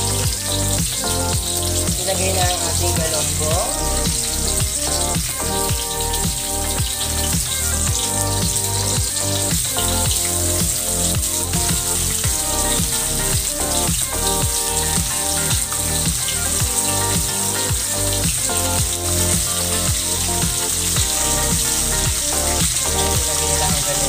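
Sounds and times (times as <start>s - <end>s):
background music with beat: 0.0s - 24.0s
oil sizzling in a wok: 0.0s - 24.0s.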